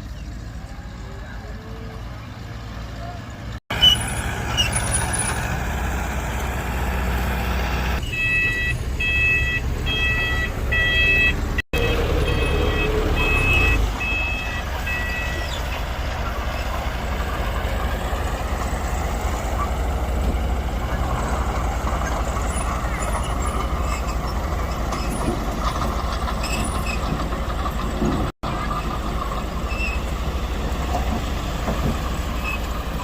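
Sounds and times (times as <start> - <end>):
diesel machinery rumbling: 0.0 - 33.0
reversing alarm beeps: 8.0 - 15.9.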